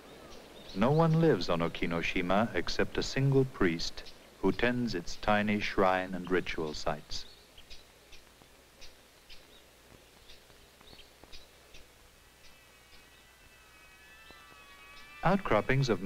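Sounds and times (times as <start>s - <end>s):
faint birds chirping: 0.0s - 16.0s
soft held high chord: 12.1s - 16.0s.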